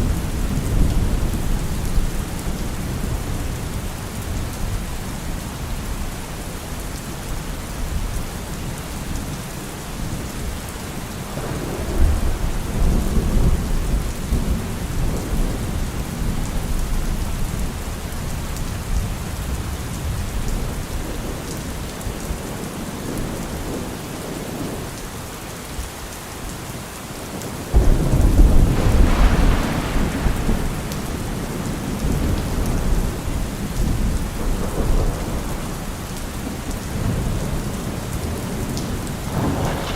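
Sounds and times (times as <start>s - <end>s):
heavy rain on a car roof: 0.0s - 39.9s
thunder rumbling: 11.2s - 21.7s, 27.4s - 39.9s.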